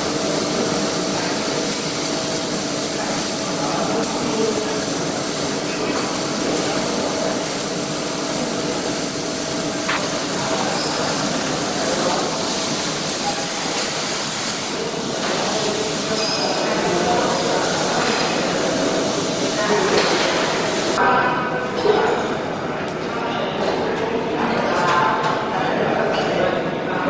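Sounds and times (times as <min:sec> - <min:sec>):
welding hissing and crackling: 0:00.0 - 0:21.0.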